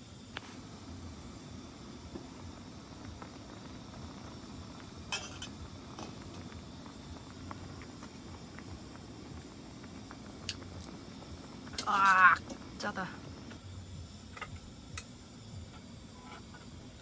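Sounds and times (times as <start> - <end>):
steady low rumble: 0.6 - 16.2.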